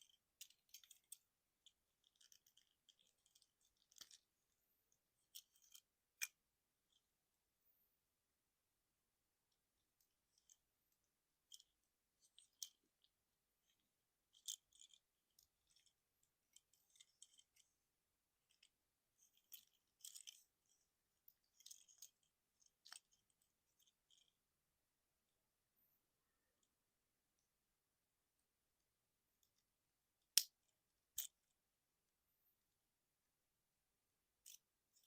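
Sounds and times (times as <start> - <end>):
plastic toy clicks and rattles: 0.0 - 4.5, 5.2 - 7.0, 9.6 - 17.8, 18.4 - 24.4, 30.3 - 31.5, 34.4 - 35.0.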